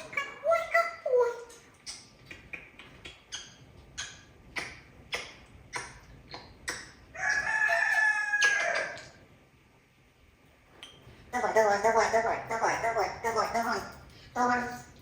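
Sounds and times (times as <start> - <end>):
parrot mimicking rooster crow: 7.1 - 9.2.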